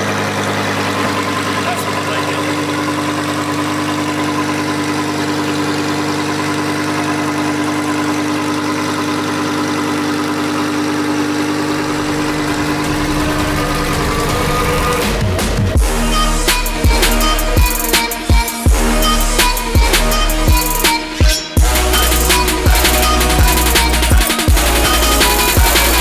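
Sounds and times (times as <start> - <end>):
car engine idling: 0.0 - 26.0
deep low rumble: 11.6 - 17.7.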